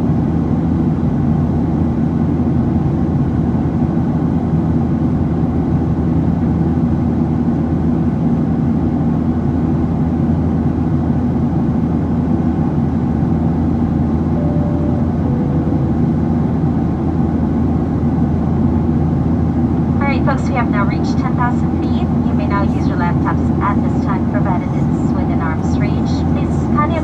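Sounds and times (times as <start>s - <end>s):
jet engines droning: 12.4s - 27.0s
two-note falling chime: 14.3s - 16.9s.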